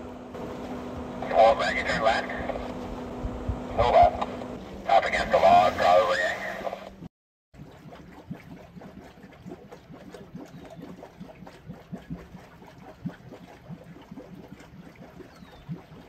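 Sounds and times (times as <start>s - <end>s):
car engine idling: 0.0s - 6.6s
water and mud splashing: 0.0s - 7.0s, 7.6s - 16.0s.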